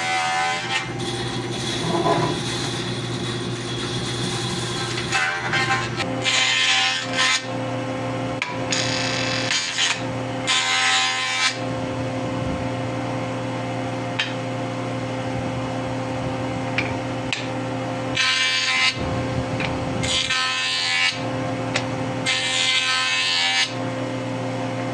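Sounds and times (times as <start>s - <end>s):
wood planer motor humming: 0.0s - 24.9s
planer cutting wood hiss: 0.6s - 7.5s.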